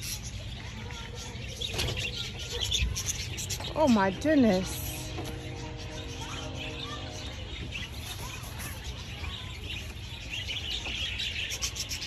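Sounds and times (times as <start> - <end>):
birds chirping and twittering: 0.0 - 12.0
low background rumble: 3.0 - 9.2.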